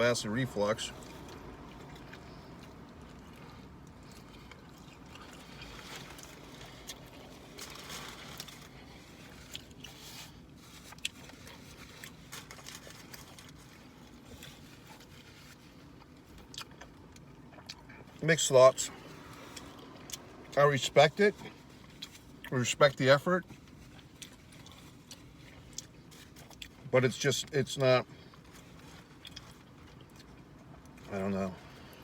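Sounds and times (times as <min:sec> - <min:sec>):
low steady background hum: 0:00.0 - 0:32.0
person chewing food: 0:00.9 - 0:18.2, 0:18.9 - 0:20.6, 0:21.4 - 0:22.5, 0:23.6 - 0:26.9, 0:28.1 - 0:32.0.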